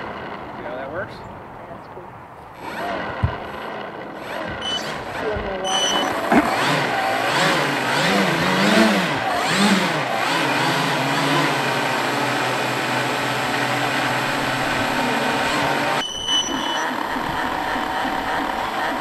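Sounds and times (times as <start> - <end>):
model aircraft motors whirring: 2.4 - 19.0
high-pitched whine: 4.5 - 6.5, 14.0 - 19.0.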